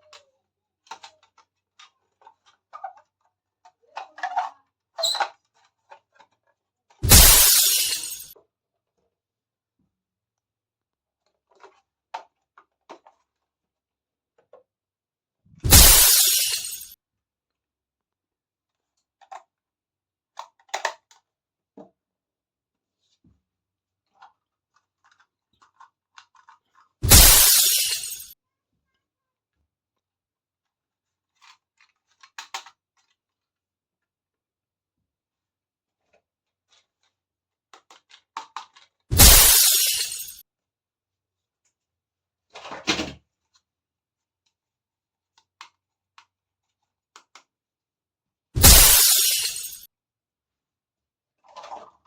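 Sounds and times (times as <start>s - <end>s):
plastic toy pieces clicking: 0.8s - 4.5s, 31.3s - 33.2s.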